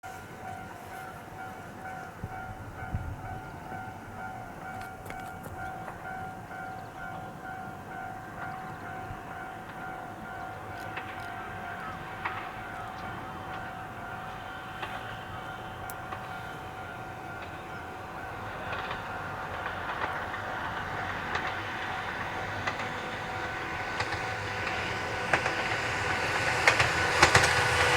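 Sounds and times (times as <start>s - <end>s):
level crossing warning bell: 0.0s - 23.8s.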